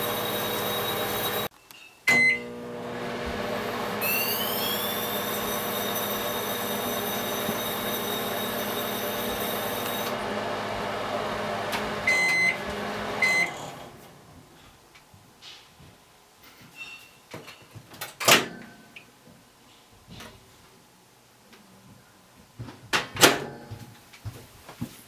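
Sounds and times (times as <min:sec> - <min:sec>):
microwave oven humming: 0:00.0 - 0:01.5, 0:02.1 - 0:14.3
microwave click: 0:02.1 - 0:04.0, 0:08.4 - 0:13.6
keypad beeps: 0:12.1 - 0:12.6
short beeps: 0:12.1 - 0:12.6.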